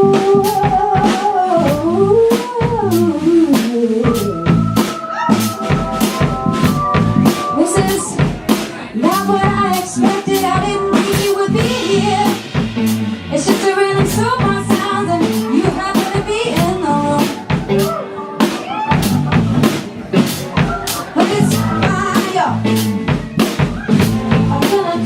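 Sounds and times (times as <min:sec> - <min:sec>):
woman singing: 0:00.0 - 0:12.6, 0:13.3 - 0:17.6, 0:21.2 - 0:23.0, 0:24.2 - 0:25.0
drum kit beat: 0:00.0 - 0:25.0
live band music: 0:00.0 - 0:25.0.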